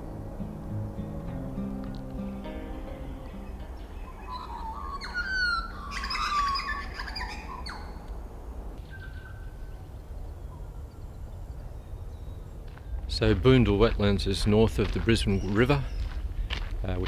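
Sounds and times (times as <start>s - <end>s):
low steady rumble: 0.0s - 6.4s
birds warbling calls: 3.0s - 8.1s, 15.1s - 16.3s.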